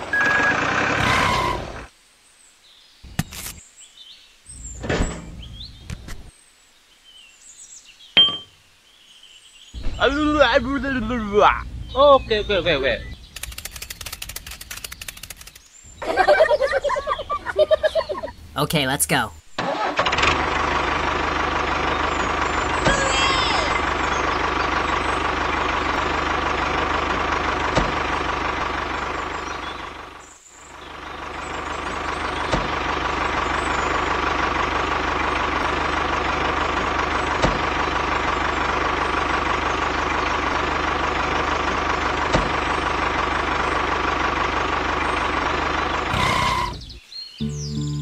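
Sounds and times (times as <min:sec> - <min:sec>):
tractor engine idling: 0:19.8 - 0:48.0.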